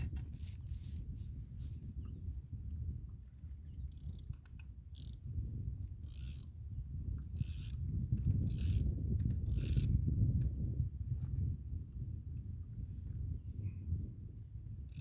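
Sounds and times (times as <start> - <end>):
fishing reel ratcheting: 0.2 - 0.9, 4.0 - 4.4, 5.0 - 5.2, 5.8 - 6.5, 7.4 - 7.8, 8.4 - 8.9, 9.5 - 9.9.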